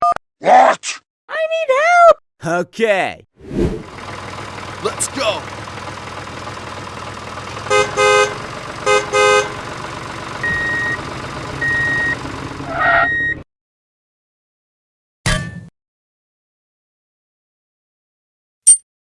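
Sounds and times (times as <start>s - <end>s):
engine hum: 3.5s - 13.4s
horn honking: 7.4s - 12.2s.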